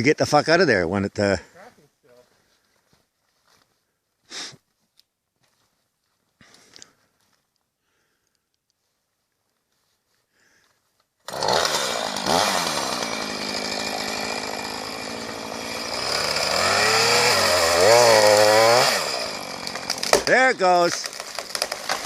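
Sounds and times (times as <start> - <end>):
chainsaw cutting at full throttle: 11.2 - 22.0.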